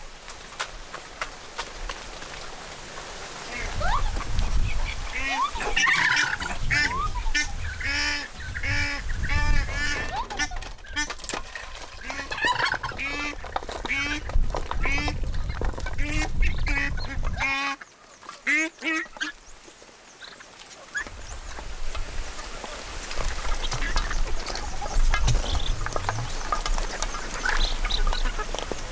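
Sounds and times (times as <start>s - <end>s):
poultry calling: 3.4s - 19.5s, 22.4s - 28.9s.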